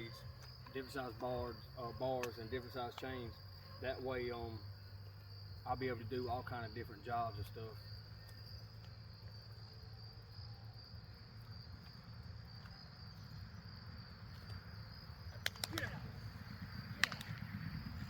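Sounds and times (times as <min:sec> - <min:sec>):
insects trilling: 0:00.0 - 0:18.0
sharp clicks: 0:15.3 - 0:16.0, 0:17.0 - 0:17.5.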